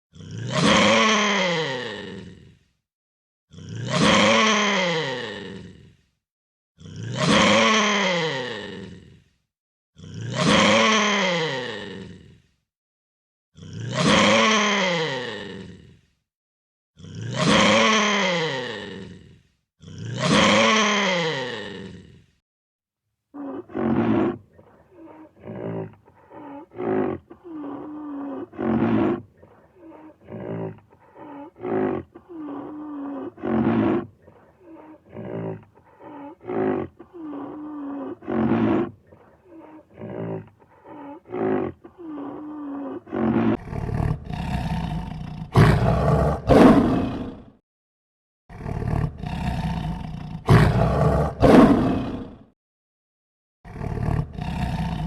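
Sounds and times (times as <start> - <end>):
large animal roaring: 13.6 - 16.1, 17.0 - 22.4, 23.4 - 47.6, 48.5 - 52.5, 53.7 - 55.0.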